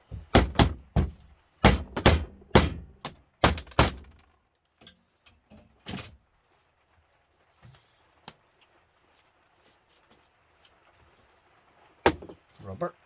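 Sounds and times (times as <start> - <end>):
hammer striking metal: 0.4 - 4.1.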